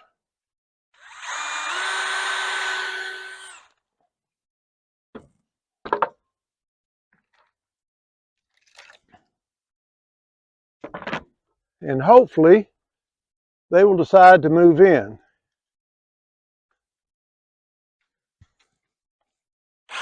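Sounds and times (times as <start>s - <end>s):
power drill driving a screw: 1.0s - 3.8s.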